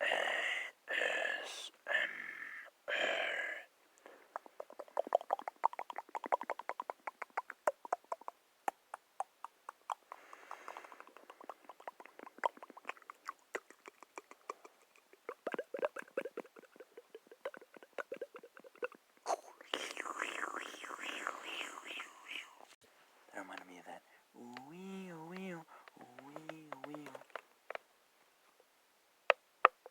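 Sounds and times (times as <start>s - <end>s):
soft breathy hiss: 0.0s - 29.2s
rapid small clicks: 4.4s - 18.4s, 24.5s - 27.9s.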